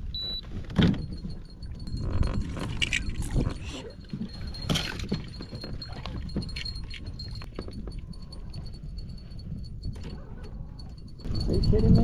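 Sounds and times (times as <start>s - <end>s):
fishing gear knocking and clinking: 0.6s - 12.0s.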